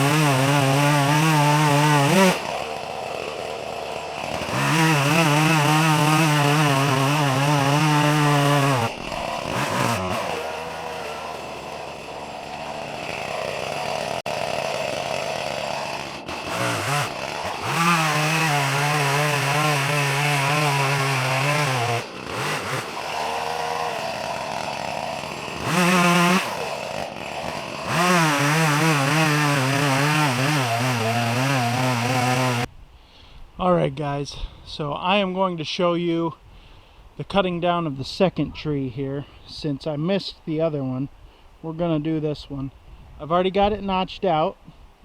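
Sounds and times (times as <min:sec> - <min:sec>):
chainsaw cutting wood: 0:00.0 - 0:32.7.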